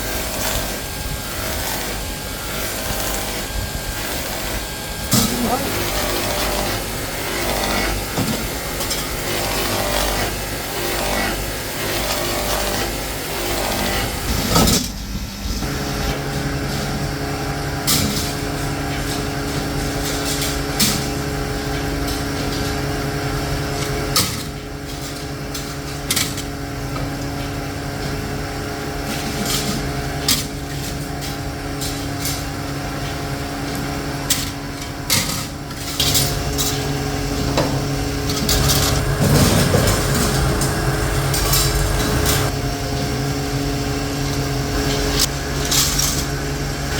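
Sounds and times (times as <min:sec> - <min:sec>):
electric motor hum: 0:00.0 - 0:46.9.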